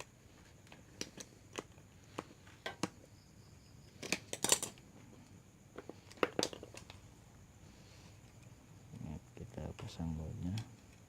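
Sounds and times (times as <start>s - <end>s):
small metal parts clicking: 3.9s - 5.0s.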